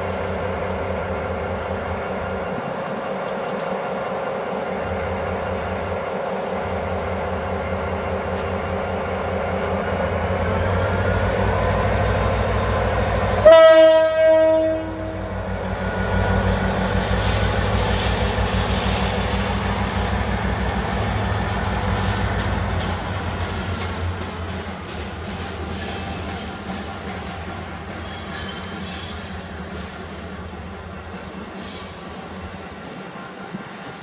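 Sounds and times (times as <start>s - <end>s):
locomotive rumble: 0.0s - 34.0s
train horn blast: 13.4s - 15.3s.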